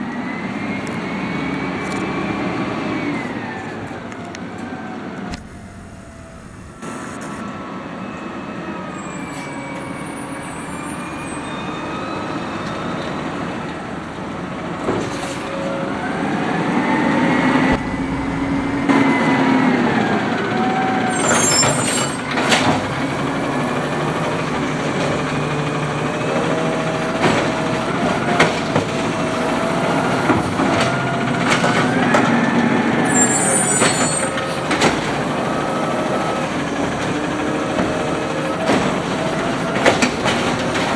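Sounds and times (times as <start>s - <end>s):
garbage truck idling: 0.0s - 40.9s
hydraulic arm whine: 0.0s - 40.9s
sharp knocks: 17.7s - 19.4s.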